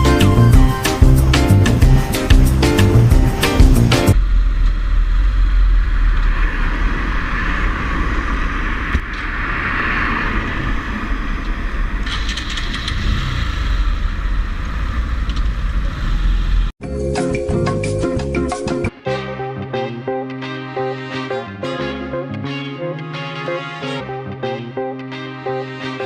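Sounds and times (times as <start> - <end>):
motorcycle engine: 0.0 - 7.7, 11.5 - 16.7
road noise rumble: 0.0 - 16.8.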